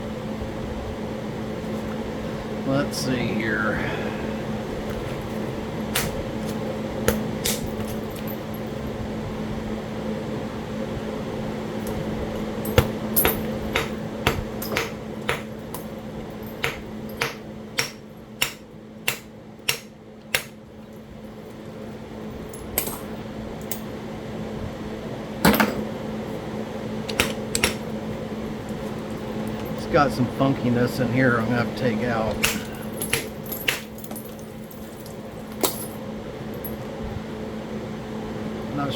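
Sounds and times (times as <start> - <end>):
fan humming: 0.0 - 38.9.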